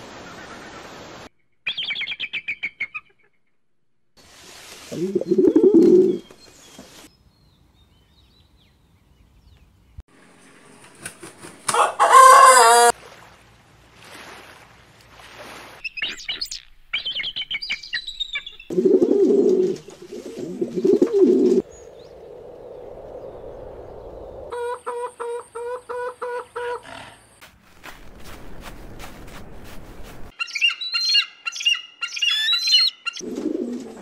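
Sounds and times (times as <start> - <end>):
high bird chirps: 1.4 - 3.5, 15.8 - 18.7, 30.4 - 33.2
pigeon cooing: 4.9 - 6.2, 18.7 - 21.6, 33.2 - 34.0
rooster crowing: 11.6 - 13.0, 24.5 - 26.8.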